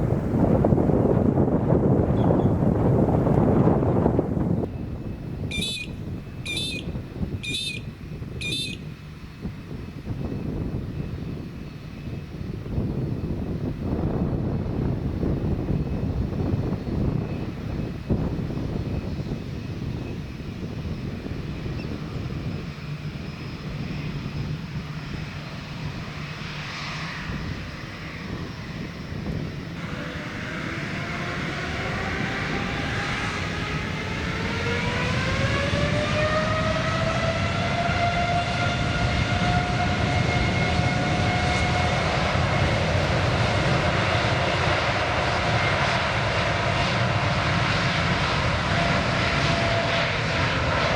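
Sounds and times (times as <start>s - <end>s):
jet engines spooling up: 0.0s - 50.9s.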